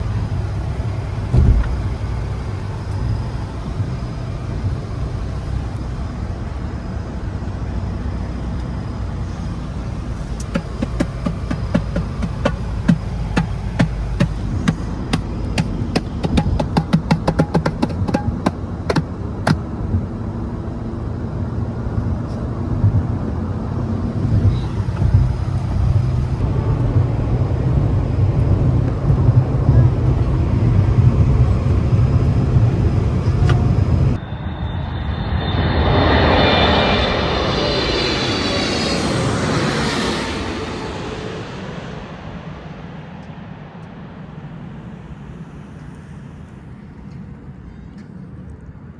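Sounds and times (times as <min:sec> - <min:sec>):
low vehicle rumble: 0:00.0 - 0:34.6, 0:35.3 - 0:48.9
rapid sharp clicks: 0:10.2 - 0:19.6.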